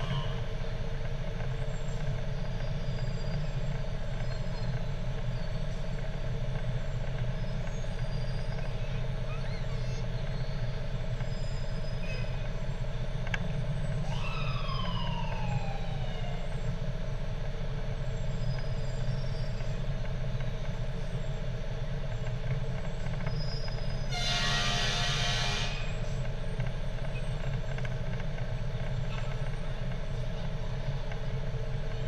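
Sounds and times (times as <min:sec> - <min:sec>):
siren wail: 0:00.0 - 0:00.6, 0:14.0 - 0:16.7
fire truck engine running: 0:00.0 - 0:32.0
air horn blast: 0:24.1 - 0:26.0.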